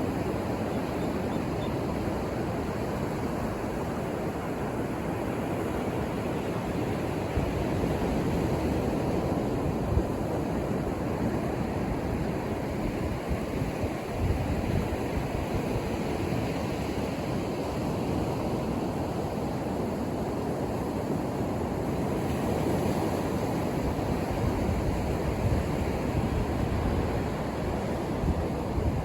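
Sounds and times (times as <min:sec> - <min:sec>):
ocean surf washing on beach: 0:00.0 - 0:29.0
wind on microphone: 0:22.0 - 0:29.0.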